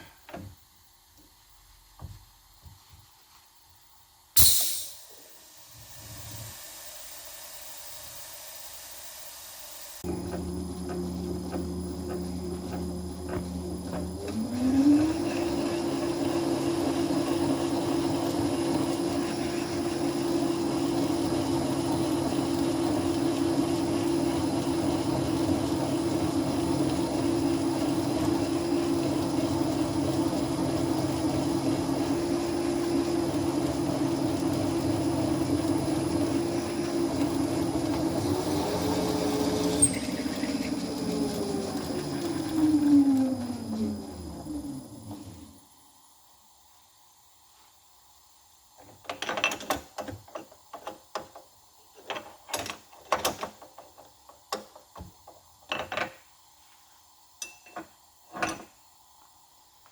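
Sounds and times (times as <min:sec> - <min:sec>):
spindle motor drilling: 0:10.0 - 0:45.5.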